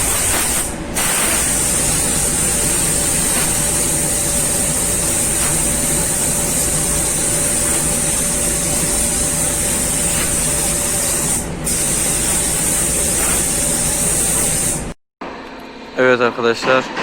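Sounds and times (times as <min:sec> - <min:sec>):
paint spray gun hissing: 0:00.0 - 0:15.0.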